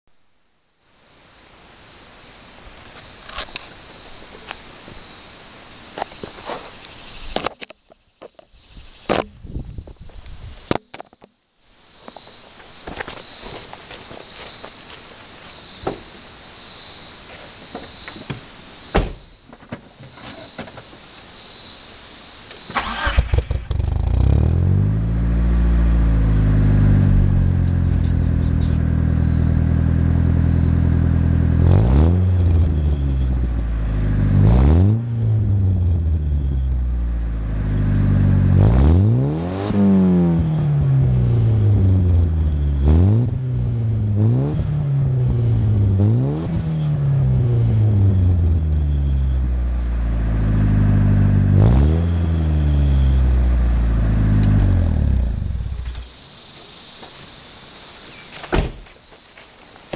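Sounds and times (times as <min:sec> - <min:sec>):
car engine starting and idling: 0:22.6 - 0:56.3
engine revs blipped: 0:22.7 - 0:56.1.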